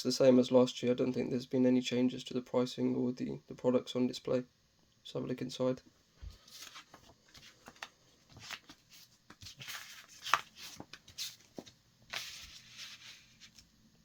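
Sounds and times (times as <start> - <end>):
paper leaflet rustling: 6.2 - 13.8.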